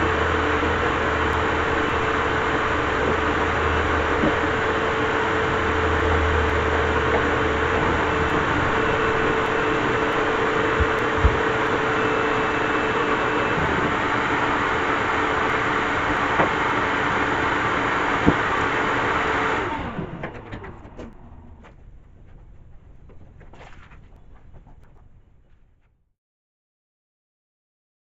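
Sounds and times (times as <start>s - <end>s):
machine motor hum: 0.0s - 21.8s.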